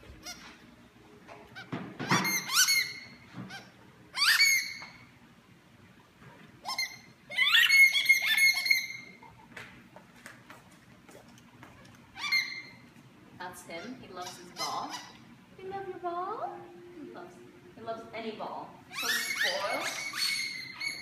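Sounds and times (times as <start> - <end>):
squeaky toy squeaking: 1.6 - 4.9, 6.6 - 9.2, 13.9 - 15.2, 18.9 - 21.0.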